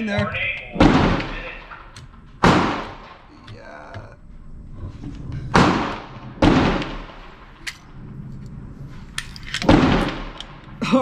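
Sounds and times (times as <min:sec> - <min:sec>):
rifle shots: 0:00.7 - 0:03.3, 0:05.5 - 0:08.1, 0:09.5 - 0:10.7.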